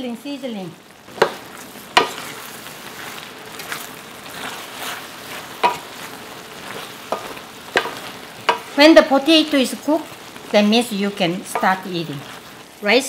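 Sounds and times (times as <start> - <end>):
food sizzling in a skillet: 0.0 - 13.0
wooden spatula knocking on pan: 1.2 - 1.4, 2.0 - 2.2, 5.6 - 5.9, 7.1 - 8.7, 11.5 - 11.8.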